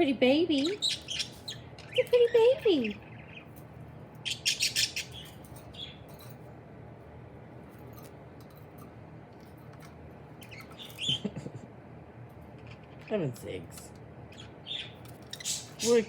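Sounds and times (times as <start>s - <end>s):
budgerigar chirping: 0.6s - 3.5s, 4.3s - 6.0s, 14.3s - 16.0s.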